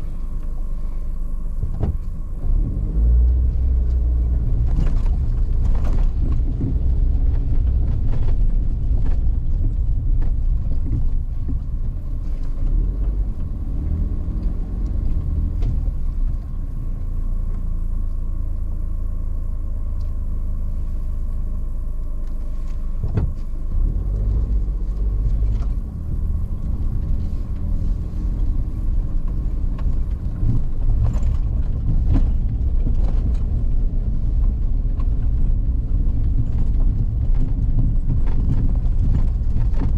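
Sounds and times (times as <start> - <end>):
knocks and clicks from rough road: 0.0 - 39.9
vehicle engine and tyres rumbling: 0.0 - 39.9.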